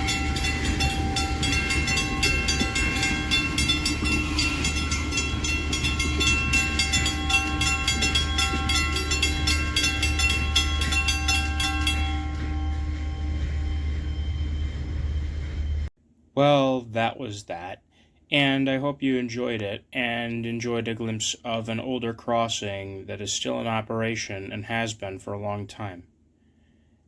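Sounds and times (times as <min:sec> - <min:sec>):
passing train rumble: 0:00.0 - 0:15.9
railroad crossing bell ringing: 0:00.0 - 0:15.9.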